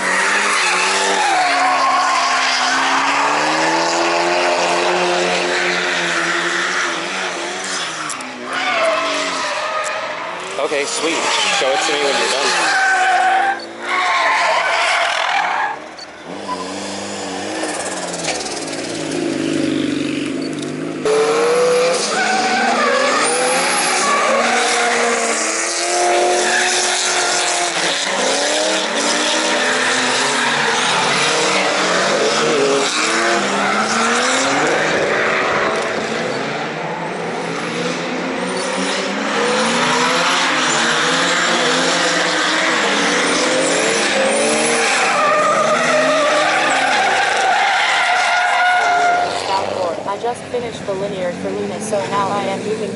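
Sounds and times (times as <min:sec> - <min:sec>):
car engines revving: 0:00.0 - 0:52.9
tyres squealing: 0:00.1 - 0:03.6, 0:07.7 - 0:16.9, 0:39.6 - 0:50.3.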